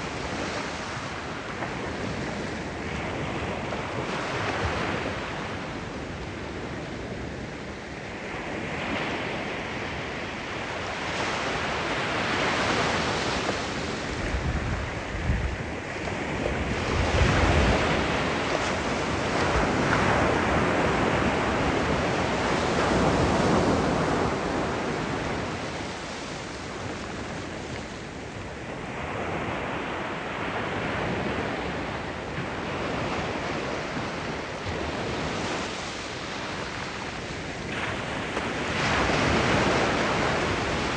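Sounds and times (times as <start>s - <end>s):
sea waves breaking: 8.2s - 40.9s.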